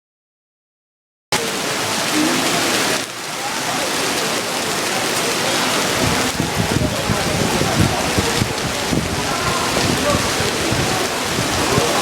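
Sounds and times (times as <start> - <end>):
heavy rain pouring: 1.3 - 12.0.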